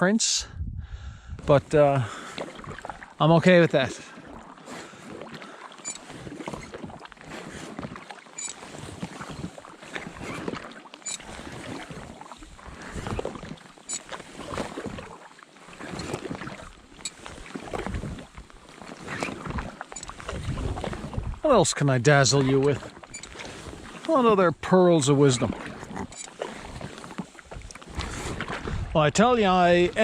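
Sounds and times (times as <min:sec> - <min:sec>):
paddle splashing through water: 0:01.6 - 0:30.0.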